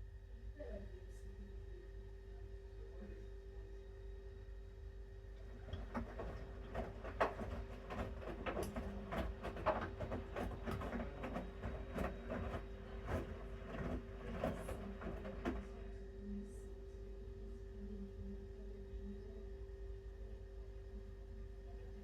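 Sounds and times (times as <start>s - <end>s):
washing machine drum humming: 5.3s - 16.0s
wet laundry tumbling and splashing: 5.5s - 15.8s.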